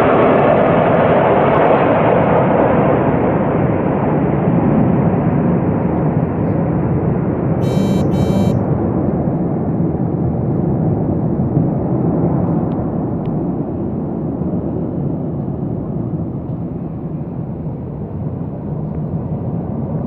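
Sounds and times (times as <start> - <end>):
short high chirps: 7.6 - 8.6.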